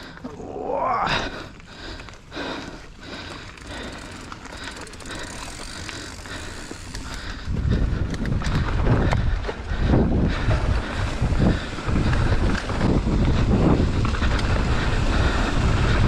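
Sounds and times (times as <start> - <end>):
bike rattling over a trail: 0.0 - 16.0
wind rumble on microphone: 6.9 - 16.0.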